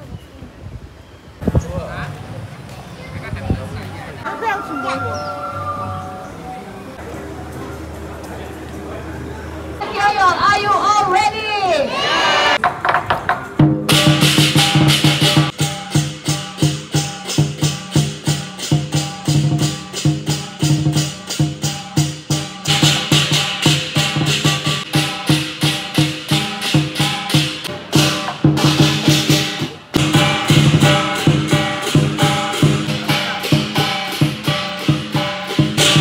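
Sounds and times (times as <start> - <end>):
drum beating: 12.6 - 36.0
cymbals: 13.6 - 36.0.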